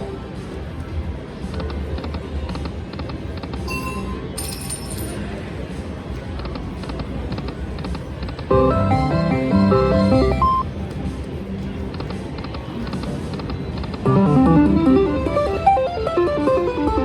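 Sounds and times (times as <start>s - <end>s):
casino hum: 8.5s - 10.6s, 14.1s - 17.0s
slot machine melodic tune: 8.5s - 10.6s, 14.1s - 17.0s.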